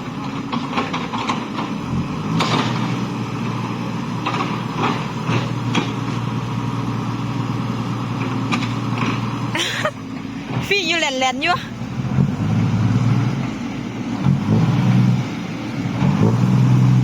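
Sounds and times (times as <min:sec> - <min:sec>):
heavy vehicle engine running: 0:00.0 - 0:17.0.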